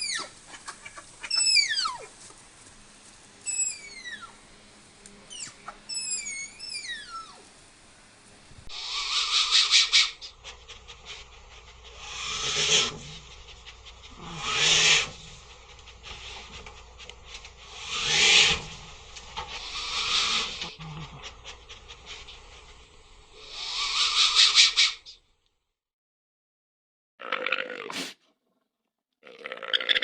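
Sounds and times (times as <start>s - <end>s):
animal snorting breaths: 8.7s - 22.8s, 27.9s - 28.2s.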